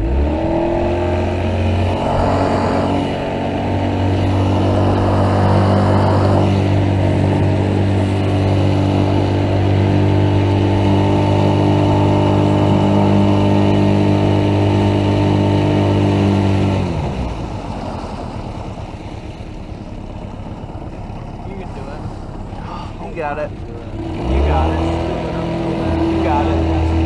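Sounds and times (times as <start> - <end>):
boat motor running: 0.0 - 27.0
noisy rush: 0.0 - 27.0.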